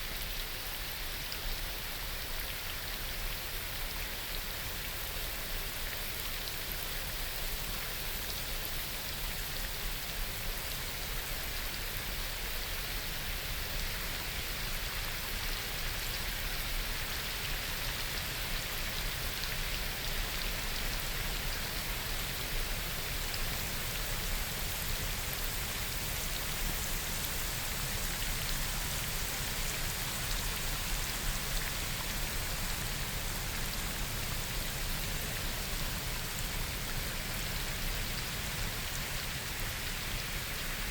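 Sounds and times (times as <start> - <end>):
rain pattering on foliage: 14.4 - 40.9.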